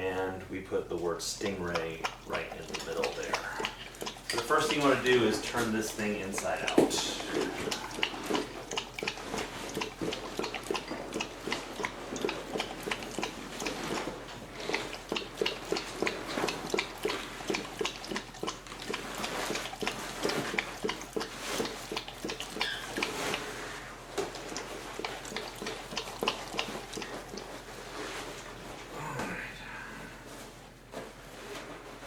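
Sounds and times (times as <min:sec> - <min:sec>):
fabric rustling and crinkling: 0:27.1 - 0:29.4, 0:30.0 - 0:32.0.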